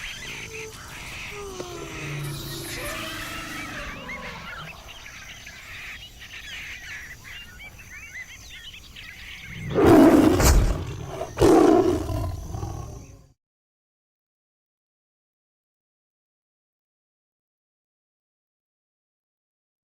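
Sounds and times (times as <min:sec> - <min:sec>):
birds chirping: 0:00.0 - 0:13.3
big cat roaring: 0:00.2 - 0:05.0, 0:09.5 - 0:13.3.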